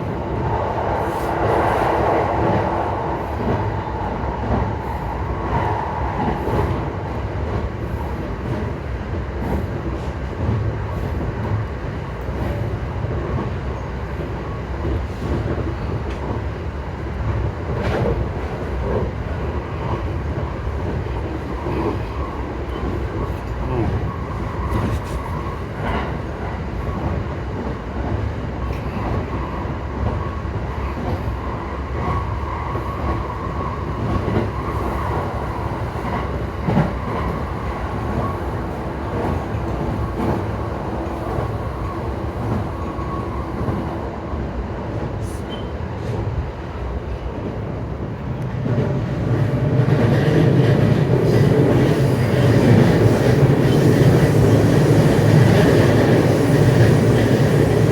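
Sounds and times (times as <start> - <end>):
rail joint clicks: 0.1 - 16.6, 17.2 - 44.0, 44.8 - 57.9.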